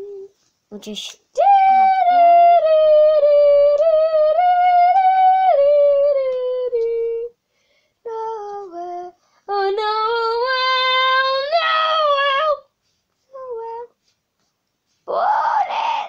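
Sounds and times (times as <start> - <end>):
girl singing wordless notes: 0.0 - 14.3, 14.9 - 16.0.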